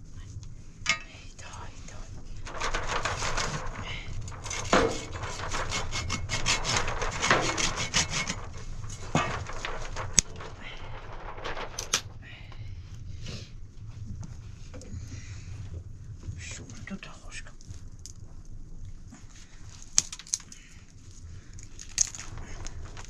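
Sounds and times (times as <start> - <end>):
wood scraping and rubbing: 0.8 - 12.2
sharp knocks: 4.4 - 10.2.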